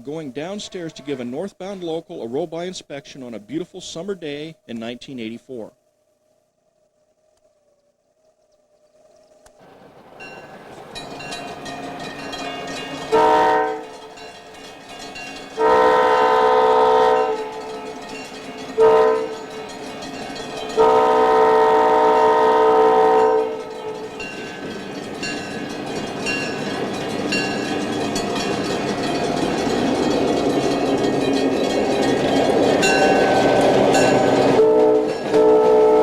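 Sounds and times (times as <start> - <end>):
locomotive air horn blasts: 0.0 - 1.5, 13.0 - 14.4, 15.6 - 24.4, 32.7 - 36.0
train rumbling: 0.0 - 5.7, 9.5 - 36.0.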